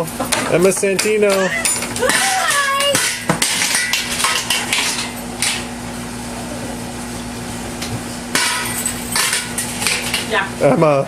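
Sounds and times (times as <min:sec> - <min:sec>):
steady low hum: 0:00.0 - 0:11.0
children banging hard objects: 0:00.2 - 0:05.6, 0:08.3 - 0:10.5.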